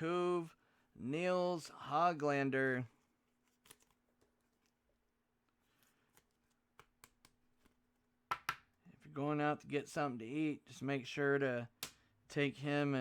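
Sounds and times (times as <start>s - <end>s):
trading cards rustling: 2.9s - 4.9s.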